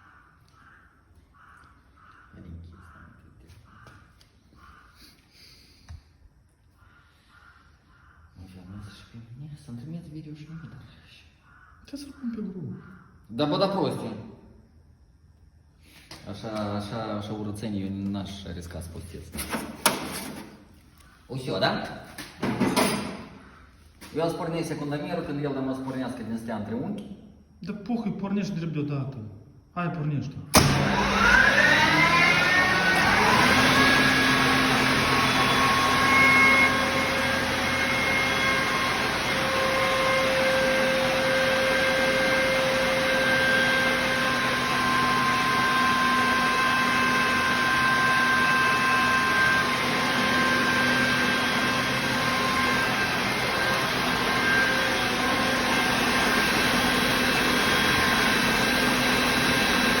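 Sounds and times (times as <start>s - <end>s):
air compressor whining: 19.2s - 26.5s, 30.5s - 60.0s.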